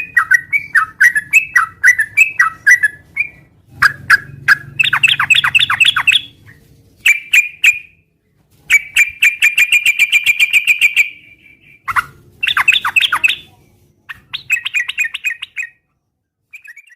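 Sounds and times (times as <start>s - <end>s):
bird singing bubbling phrases: 0.0s - 6.3s, 12.4s - 13.5s, 14.1s - 15.8s
bird chattering trill: 0.0s - 6.4s, 8.7s - 13.5s, 14.1s - 15.8s.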